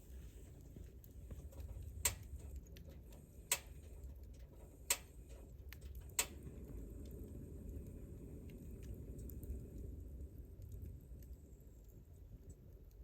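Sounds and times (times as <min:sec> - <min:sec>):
campfire burning with low rush: 0:00.0 - 0:13.0
fire crackling pops: 0:00.0 - 0:13.0.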